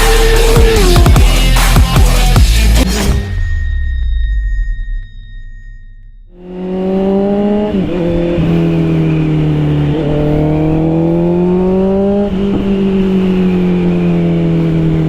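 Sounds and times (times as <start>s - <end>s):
motorcycle engine revving: 0.0s - 3.1s, 6.3s - 15.0s.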